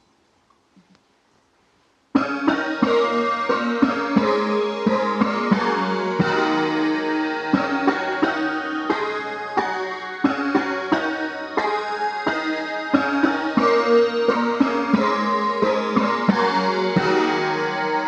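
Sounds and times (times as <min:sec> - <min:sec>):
digital synthesizer notes: 0:02.2 - 0:18.0.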